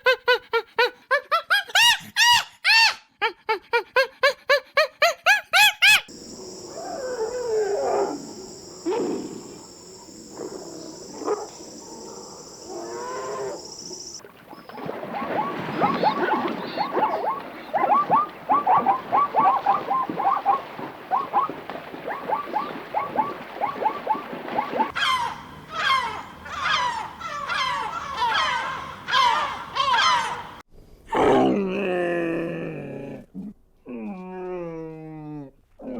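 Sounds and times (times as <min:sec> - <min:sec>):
low wavering animal calls: 0:06.1 - 0:14.2, 0:15.1 - 0:30.6
repeated falling calls: 0:06.1 - 0:14.2, 0:22.2 - 0:30.6
steady high hiss: 0:06.1 - 0:14.2.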